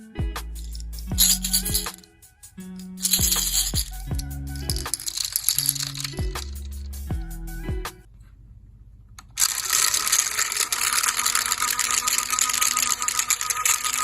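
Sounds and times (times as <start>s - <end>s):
background music: 0.0s - 8.1s
small electric motor running: 9.4s - 14.0s.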